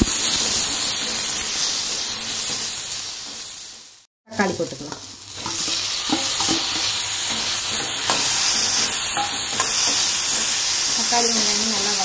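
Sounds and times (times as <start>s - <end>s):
vegetables sizzling in oil: 0.0s - 12.0s
metal spatula scraping pan: 4.9s - 11.9s.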